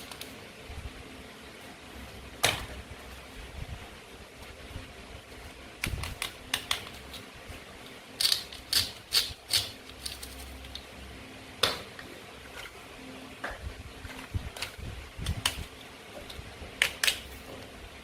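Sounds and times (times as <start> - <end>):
toy knife clicks and clacks: 8.2 - 10.3.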